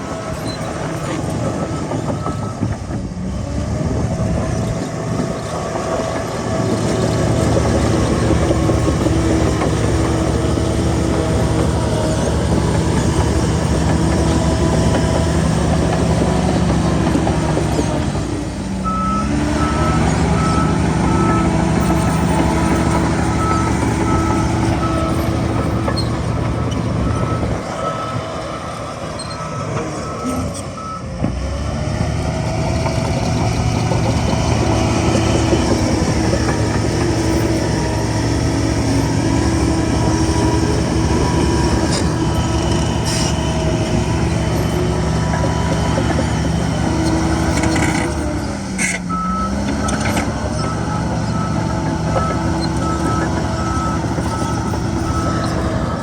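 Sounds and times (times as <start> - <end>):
heavy diesel machinery running: 0.0 - 56.0
reversing alarm beeping: 0.3 - 2.8, 18.8 - 31.1, 49.1 - 56.0.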